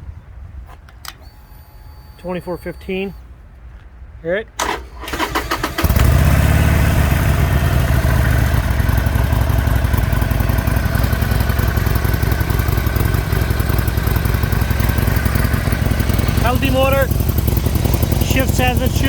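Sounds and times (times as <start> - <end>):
motorcycle engine idling: 5.8 - 19.0.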